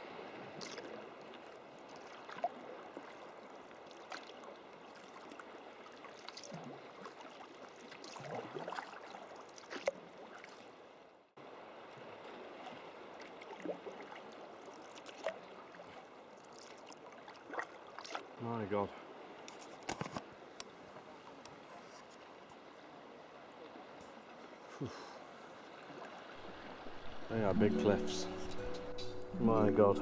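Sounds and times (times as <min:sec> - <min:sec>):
water washing along hull: 0:00.0 - 0:19.7
paddle splashes and drips: 0:00.0 - 0:27.4.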